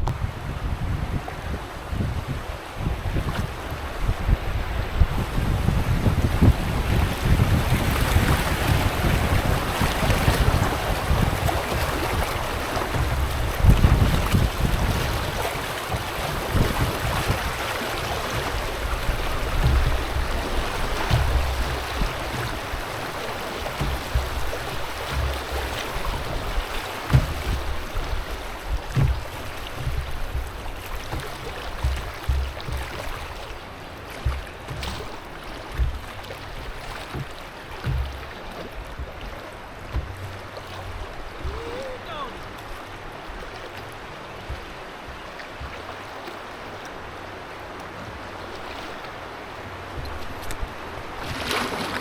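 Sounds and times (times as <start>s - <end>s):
wind on microphone: 0.0s - 42.5s
river water rushing and splashing: 0.0s - 52.0s
low thumps: 2.8s - 45.9s
sharp knocks: 18.3s - 41.9s.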